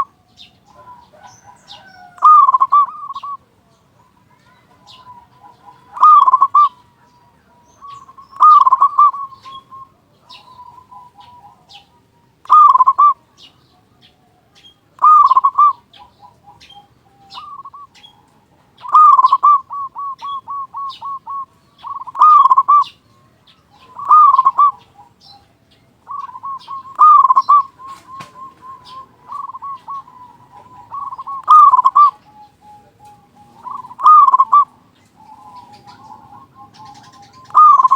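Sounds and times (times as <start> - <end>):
dove cooing: 0.0 - 37.9.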